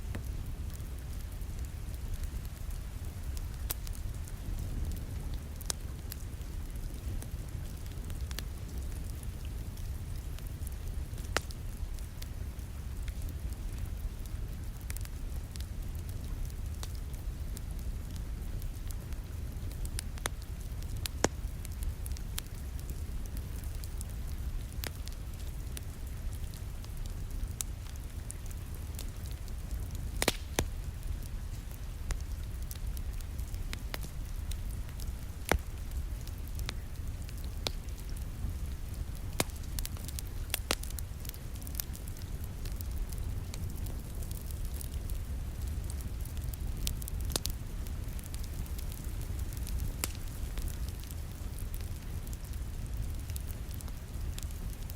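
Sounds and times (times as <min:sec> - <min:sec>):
wood fire crackling: 0:00.0 - 0:54.9
steady low rumble: 0:21.9 - 0:50.7
sharp pops of fire: 0:27.6 - 0:54.9.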